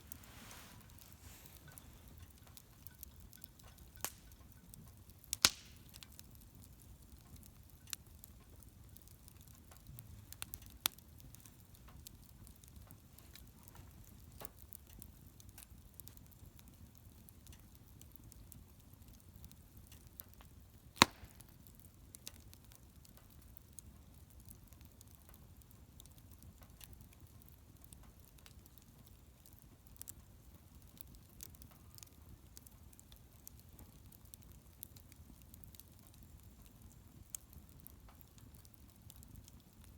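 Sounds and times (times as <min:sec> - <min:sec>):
sharp loud crack of fire: 0:00.0 - 0:06.4, 0:20.8 - 0:22.5
wood bonfire crackling: 0:00.0 - 0:39.9.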